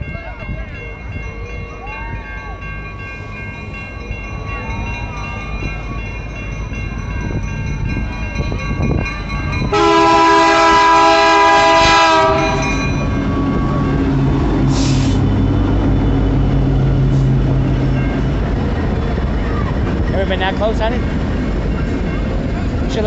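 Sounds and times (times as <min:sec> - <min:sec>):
train rolling rumble: 0:00.0 - 0:23.0
diesel engines droning: 0:09.2 - 0:23.0
train horn blast: 0:09.7 - 0:15.2.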